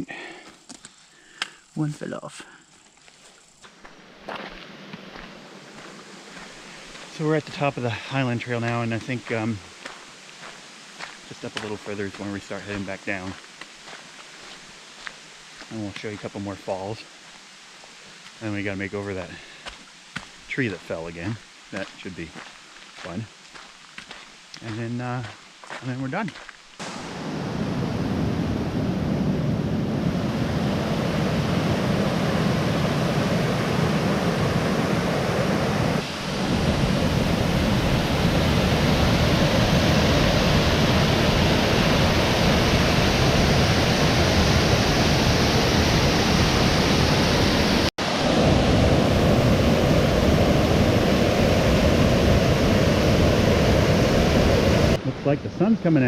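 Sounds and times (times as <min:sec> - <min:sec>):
waterfall rushing: 0:26.8 - 0:56.0.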